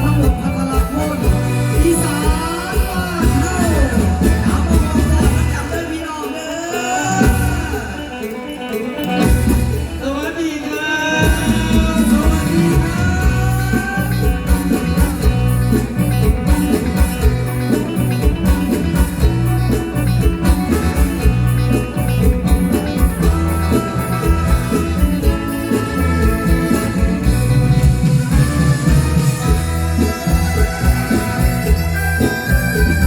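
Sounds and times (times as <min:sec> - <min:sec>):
drum kit and bass beat: 0:00.0 - 0:06.0, 0:11.2 - 0:33.0
live band music: 0:00.0 - 0:33.0.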